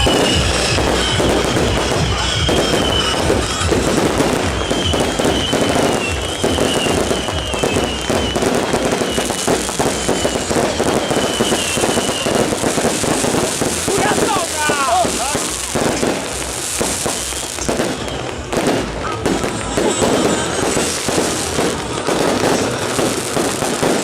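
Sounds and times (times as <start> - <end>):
wavering high whistle: 0.0 - 13.4
firecracker and rocket cracks: 0.0 - 24.0.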